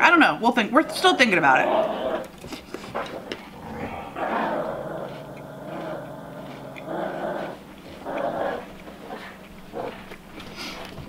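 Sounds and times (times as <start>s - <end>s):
chewing cereal with milk: 1.8s - 11.0s.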